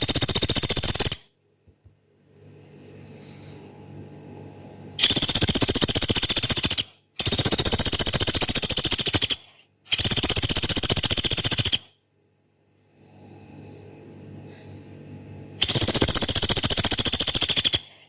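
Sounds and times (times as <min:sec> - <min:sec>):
woodpecker rattling trills: 0:00.0 - 0:01.2, 0:05.0 - 0:11.9, 0:15.6 - 0:18.0.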